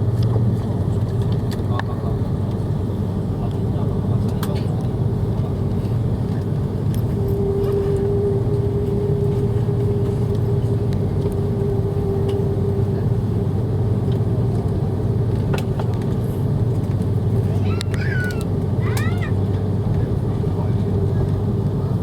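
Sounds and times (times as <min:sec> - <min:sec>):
airplane engine and airflow rumble: 0:00.0 - 0:22.0
steady hum: 0:05.0 - 0:17.6.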